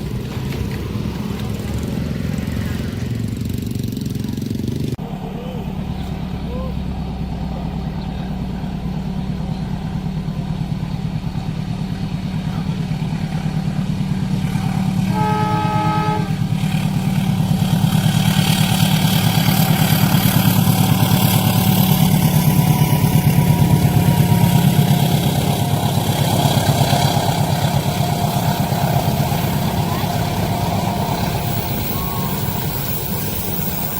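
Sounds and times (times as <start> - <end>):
train engine drone: 0.0 - 33.9
train passing rush: 0.0 - 33.9
train horn: 14.6 - 17.0, 21.3 - 33.9.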